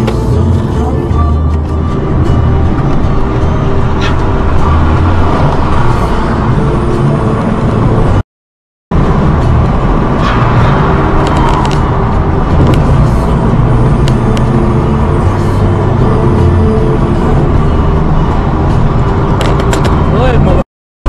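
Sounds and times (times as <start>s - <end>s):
car engine and road noise: 0.0s - 8.2s, 8.9s - 20.6s.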